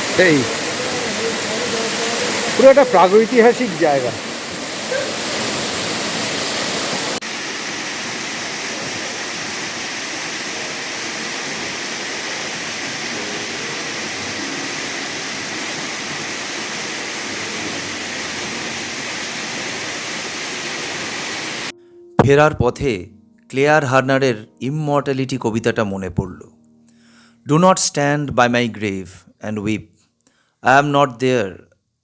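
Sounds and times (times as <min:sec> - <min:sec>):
waterfall rushing: 0:00.0 - 0:21.7.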